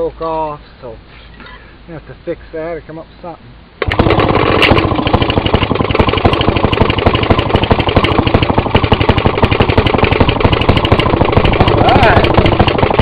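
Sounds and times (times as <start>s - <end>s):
two-stroke engine running: 3.8s - 13.0s.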